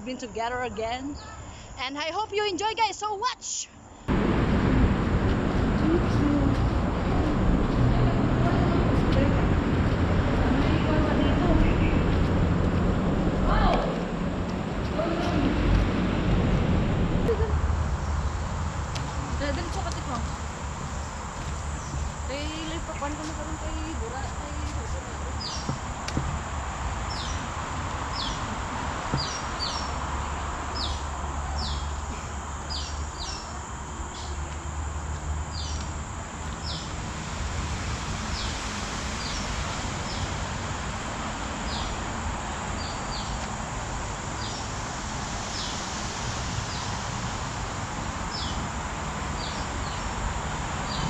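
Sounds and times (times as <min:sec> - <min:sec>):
insect drone: 0:00.0 - 0:51.0
low rumble: 0:04.1 - 0:27.5
bird chirping: 0:25.4 - 0:26.0, 0:29.1 - 0:32.0.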